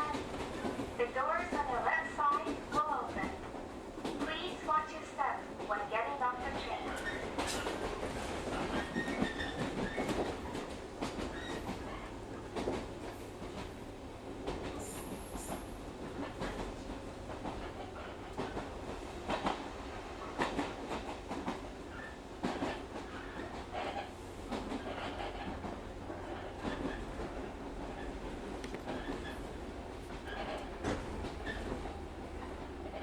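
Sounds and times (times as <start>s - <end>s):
train rumble: 0.0s - 33.0s
wheels clacking over rail joints: 24.4s - 33.0s.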